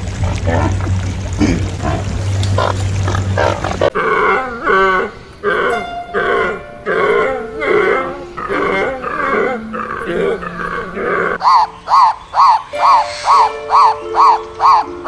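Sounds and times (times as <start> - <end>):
steady humming: 0.0 - 11.4.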